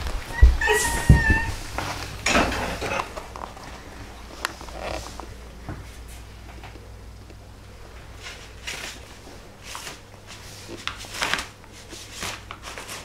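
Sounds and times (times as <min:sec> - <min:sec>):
rustling: 0:08.0 - 0:13.0.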